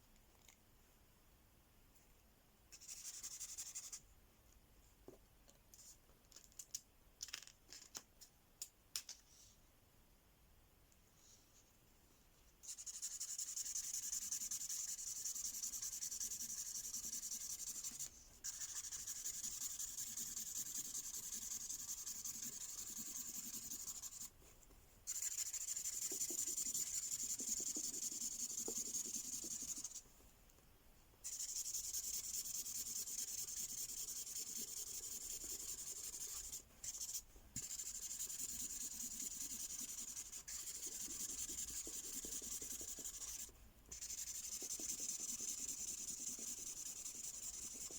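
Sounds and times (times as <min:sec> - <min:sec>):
felt-tip pen rubbing on paper: 0:12.7 - 0:24.4, 0:25.1 - 0:30.0, 0:31.2 - 0:47.9.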